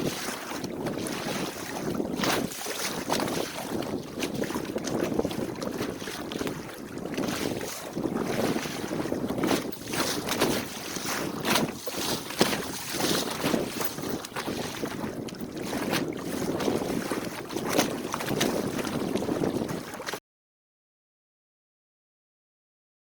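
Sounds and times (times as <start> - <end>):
water splashing along boat hull: 0.0 - 20.2
wind buffeting microphone: 0.0 - 20.2
sharp water slaps: 9.6 - 13.6.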